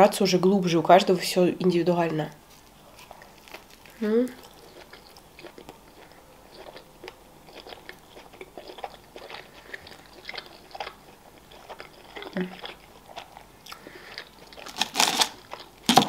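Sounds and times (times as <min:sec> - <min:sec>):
chewing pizza: 0:02.4 - 0:16.0
crust crunching: 0:14.5 - 0:16.0.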